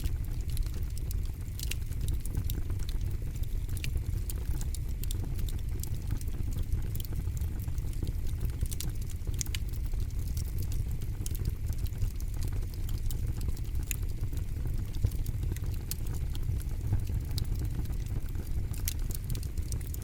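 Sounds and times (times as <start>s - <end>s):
fire low rumble: 0.0s - 20.0s.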